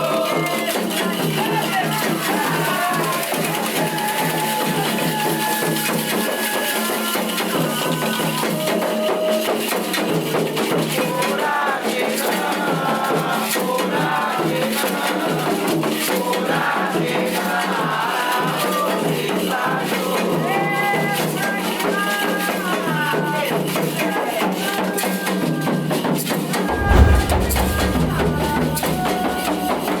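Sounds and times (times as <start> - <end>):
hand percussion: 1.0 - 10.8.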